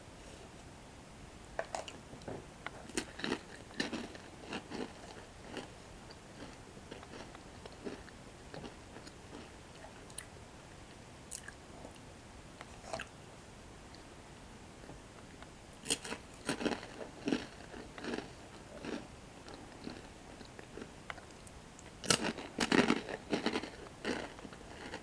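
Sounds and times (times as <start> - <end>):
crunchy bread sticks chewing: 2.7 - 10.3, 15.8 - 25.0.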